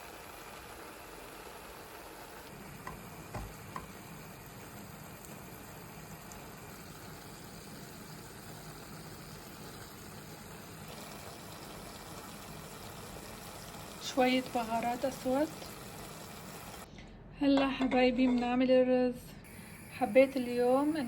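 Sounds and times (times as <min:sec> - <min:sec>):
beans stewing in a pot: 0:00.0 - 0:16.9.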